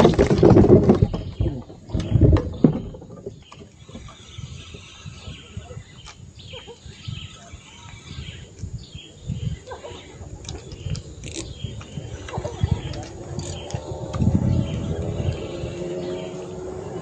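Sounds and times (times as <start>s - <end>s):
low knocks and bumps: 0.0s - 4.4s
small birds chirping: 0.9s - 17.0s.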